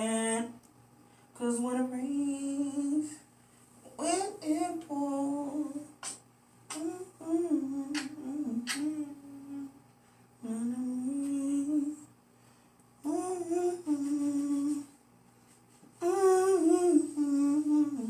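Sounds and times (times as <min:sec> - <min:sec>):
person humming a slow melody: 0:06.7 - 0:09.8, 0:10.4 - 0:12.1, 0:13.0 - 0:15.0, 0:16.0 - 0:18.0.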